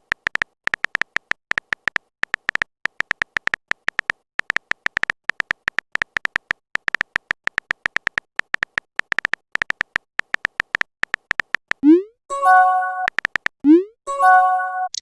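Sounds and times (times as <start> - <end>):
short high typing beeps: 7.9 - 15.0
rising bloop: 11.8 - 12.4.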